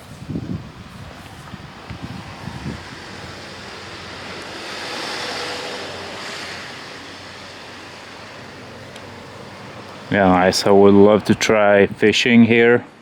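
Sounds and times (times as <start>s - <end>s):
sea waves washing against rocks: 1.6s - 10.2s.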